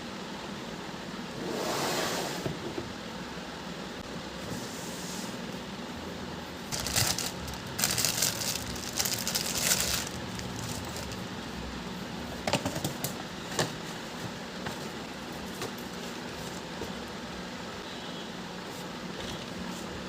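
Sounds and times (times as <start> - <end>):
low room hum: 0.0 - 20.0
rustling and crinkling: 6.7 - 11.3.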